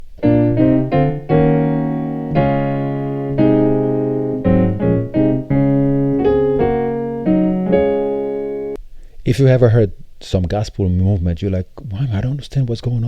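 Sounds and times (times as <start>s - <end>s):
piano playing gospel chords: 0.0s - 8.8s.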